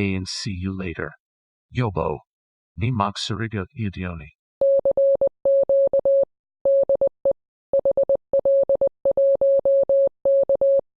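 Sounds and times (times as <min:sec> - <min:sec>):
morse code beeps: 0:04.6 - 0:10.8.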